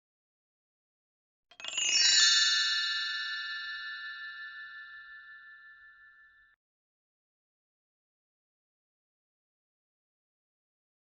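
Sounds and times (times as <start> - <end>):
bell-like chimes ringing: 1.5 - 6.6.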